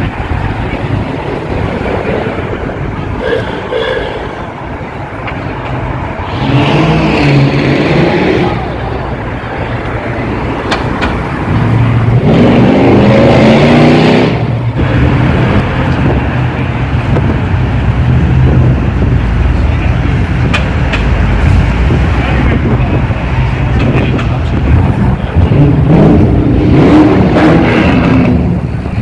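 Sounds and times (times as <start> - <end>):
engines running rumble: 0.0 - 29.0
car engine revving: 6.0 - 29.0.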